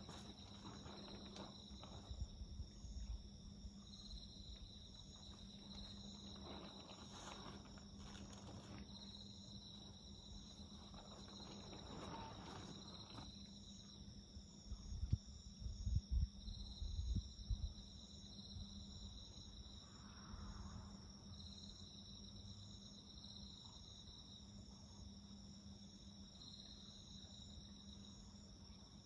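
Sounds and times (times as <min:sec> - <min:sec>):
wood fire crackling: 0:00.0 - 0:02.2, 0:05.1 - 0:13.3
crickets and insects trilling: 0:00.0 - 0:29.0.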